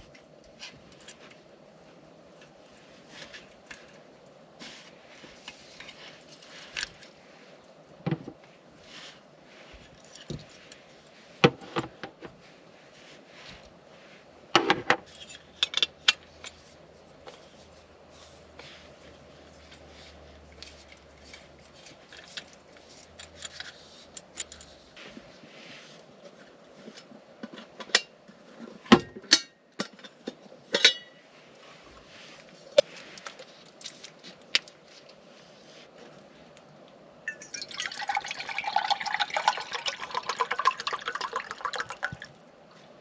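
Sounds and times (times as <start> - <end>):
metal cookware clinking: 30.7 - 31.2.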